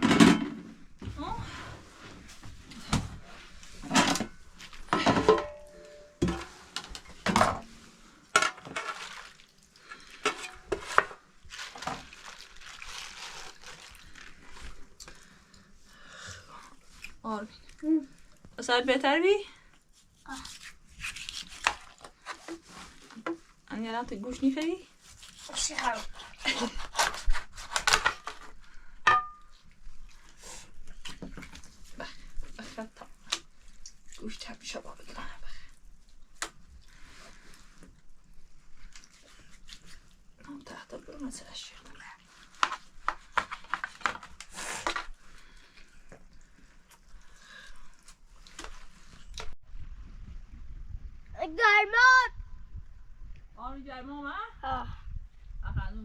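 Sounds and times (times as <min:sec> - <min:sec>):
metal pots and dishes clattering: 0:00.0 - 0:00.7, 0:03.8 - 0:06.6, 0:08.4 - 0:09.0, 0:29.1 - 0:29.5.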